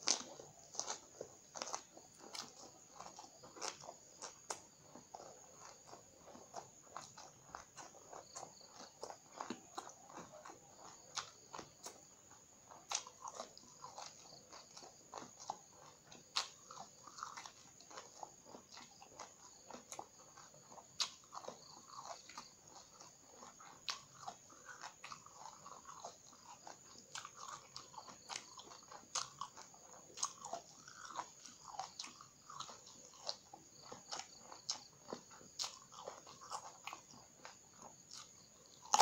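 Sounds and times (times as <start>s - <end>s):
crunchy biting and chewing: 0.0s - 39.0s.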